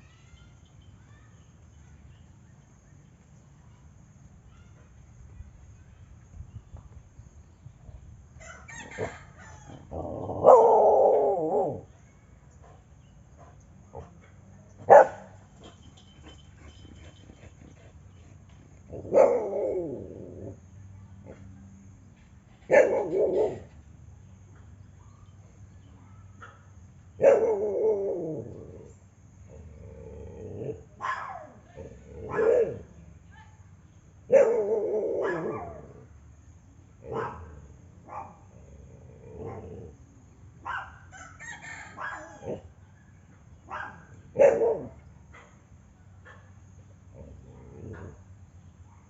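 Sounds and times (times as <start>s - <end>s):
rooster crowing: 8.4s - 10.0s, 41.1s - 42.7s
dog barking: 10.4s - 11.2s, 14.9s - 15.4s, 18.9s - 19.6s, 22.7s - 23.7s, 26.4s - 27.7s, 31.0s - 31.7s, 32.3s - 32.9s, 34.3s - 35.8s, 37.1s - 37.5s, 38.1s - 38.5s, 40.6s - 41.1s, 42.0s - 42.6s, 43.7s - 45.6s.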